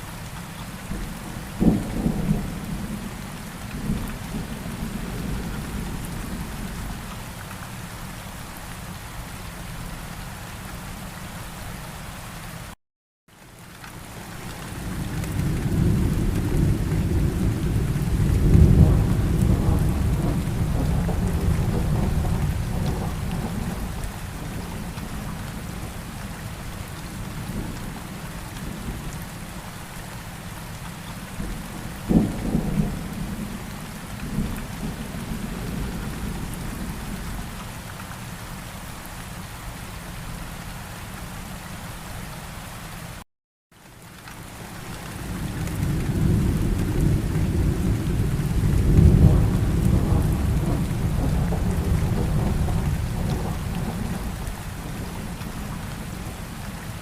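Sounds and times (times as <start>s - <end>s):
steady rain: 0.0s - 57.0s
rolling thunder: 14.9s - 26.0s, 31.4s - 37.4s, 45.2s - 56.4s
sharp thunderclap: 45.7s - 54.4s.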